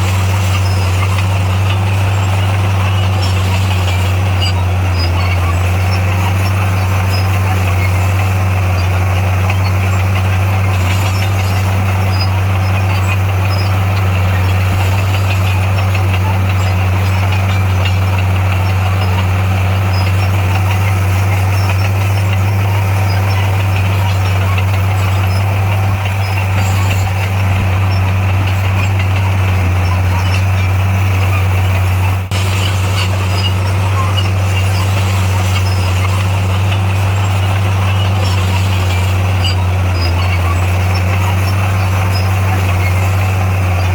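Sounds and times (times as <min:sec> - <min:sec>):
diesel engine droning: 0:00.0 - 0:43.9.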